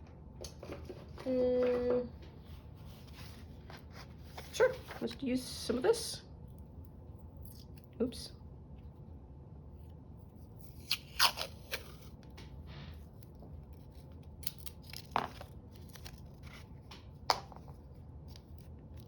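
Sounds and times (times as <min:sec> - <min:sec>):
paper handling noise: 0:10.6 - 0:19.0.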